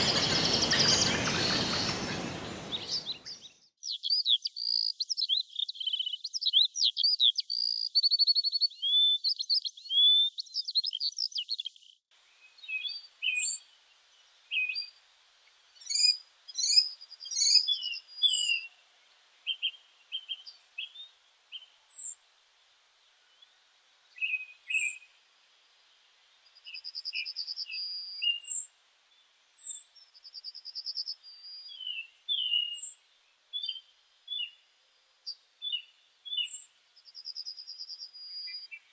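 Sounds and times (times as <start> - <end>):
birds chirping and whistling: 0.0 - 7.8, 12.5 - 13.6, 14.5 - 14.9, 15.8 - 18.8, 19.4 - 22.2, 24.2 - 25.1, 26.7 - 28.7, 29.6 - 29.8, 30.9 - 34.6, 35.6 - 36.7, 37.3 - 38.9
bird warbling song: 0.0 - 38.9.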